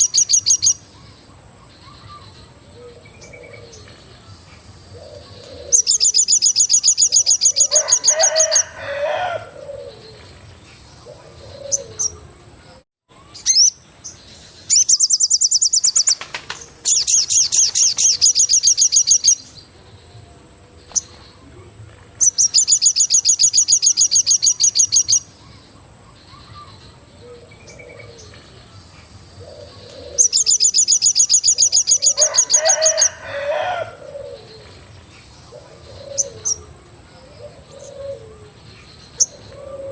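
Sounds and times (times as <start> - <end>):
bird trilling: 5.0 - 10.2, 13.2 - 13.8, 14.7 - 19.4, 22.2 - 25.3, 29.4 - 34.6, 35.5 - 38.5.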